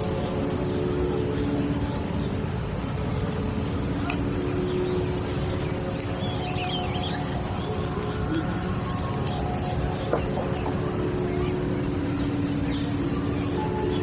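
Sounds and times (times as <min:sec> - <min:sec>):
high-pitched insect drone: 0:00.0 - 0:14.0
bird chirps: 0:09.9 - 0:11.5.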